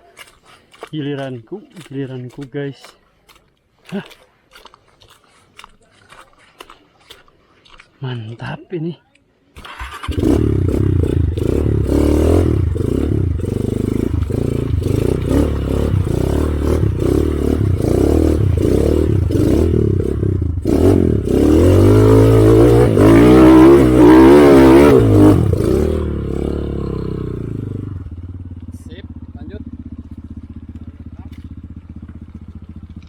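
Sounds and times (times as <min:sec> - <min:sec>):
motorcycle engine revving: 0:09.6 - 0:33.0.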